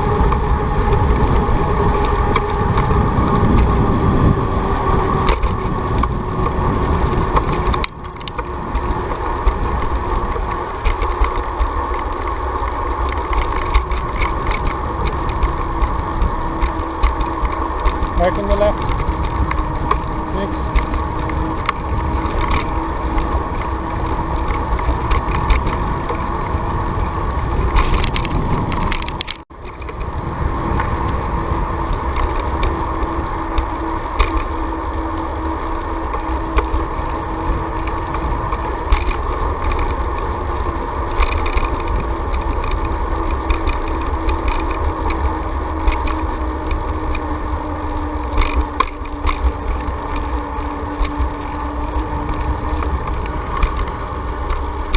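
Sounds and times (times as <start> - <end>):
bicycle riding rumble and wind: 0.0 - 54.9.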